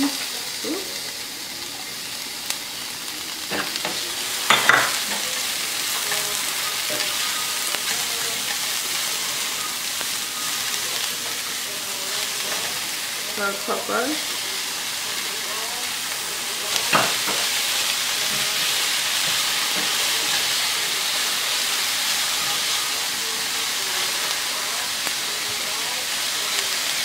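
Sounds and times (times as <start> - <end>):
onion sizzling in hot oil: 0.0 - 27.0.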